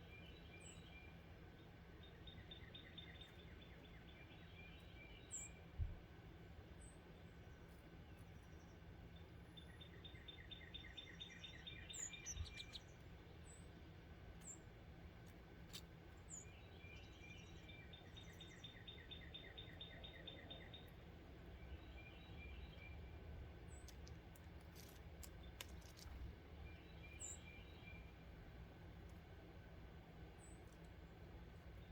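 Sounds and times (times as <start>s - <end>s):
songbird trills: 0.0s - 5.6s, 6.8s - 13.7s, 15.7s - 24.2s, 24.8s - 28.2s
faint low hum: 0.0s - 31.9s.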